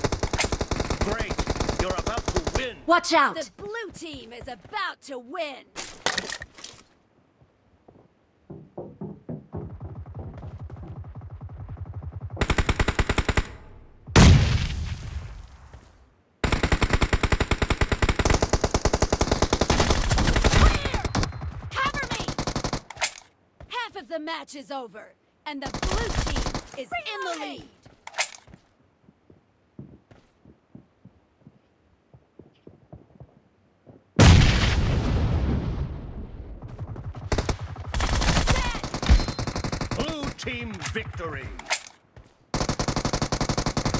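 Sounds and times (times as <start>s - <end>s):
video game automatic gunfire: 0.0s - 2.7s, 9.7s - 13.6s, 16.4s - 22.8s, 36.6s - 40.3s, 42.5s - 43.9s.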